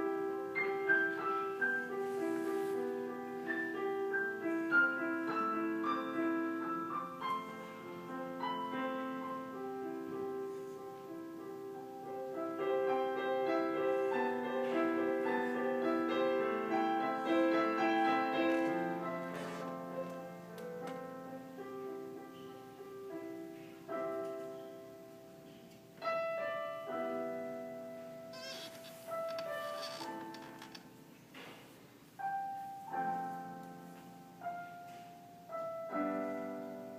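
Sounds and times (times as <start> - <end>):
solo piano classical piece: 0.0 - 36.9.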